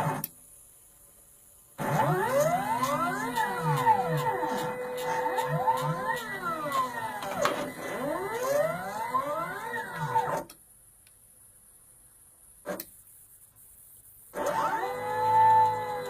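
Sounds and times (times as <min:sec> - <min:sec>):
stepper motors whining: 0:01.8 - 0:10.5, 0:14.4 - 0:16.0.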